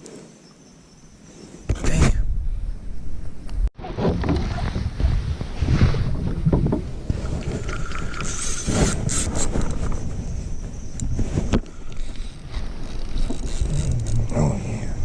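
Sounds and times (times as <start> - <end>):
wind rumbling on microphone: 1.4 - 15.0
knocks and splashes: 3.8 - 8.4
water and kayak handling: 3.8 - 14.8.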